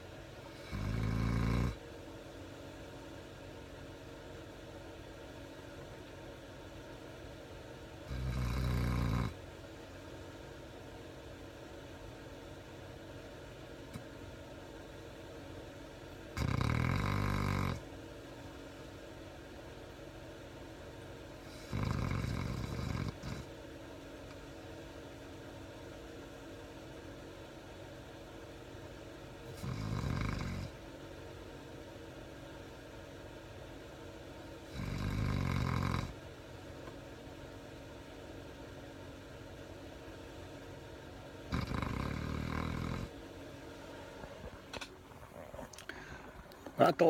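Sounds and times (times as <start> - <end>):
low steady hum: 0.0 - 17.0, 17.7 - 29.9, 30.5 - 35.2, 36.0 - 47.0
dog snoring: 0.5 - 1.8, 8.0 - 9.4, 16.3 - 17.9, 21.4 - 23.6, 29.5 - 30.8, 34.6 - 36.2, 41.4 - 43.2, 44.2 - 46.1.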